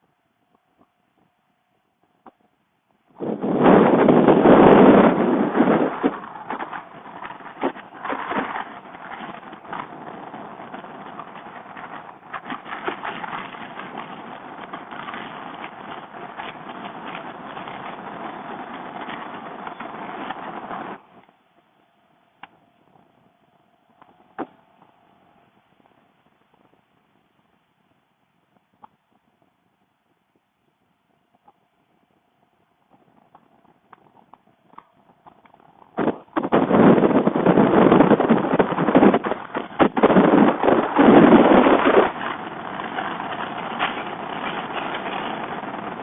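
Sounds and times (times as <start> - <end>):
wind rushing over helmet: 3.1 - 21.8, 31.8 - 46.0.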